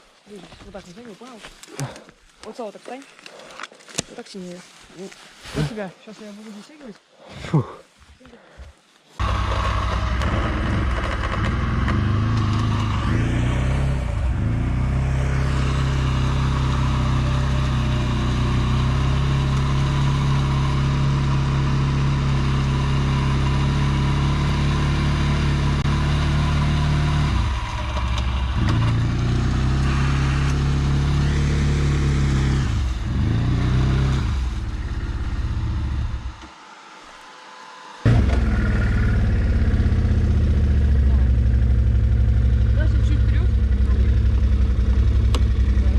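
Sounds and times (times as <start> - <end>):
off-road vehicle engine revving: 9.2 - 45.9.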